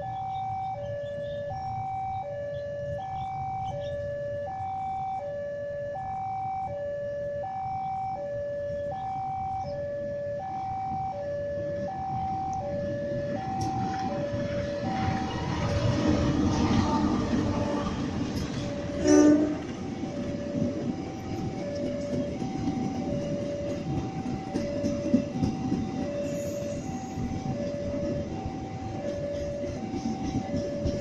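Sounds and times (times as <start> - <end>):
two-tone level-crossing alarm: 0.0 - 31.0
oncoming train rumble: 8.6 - 31.0.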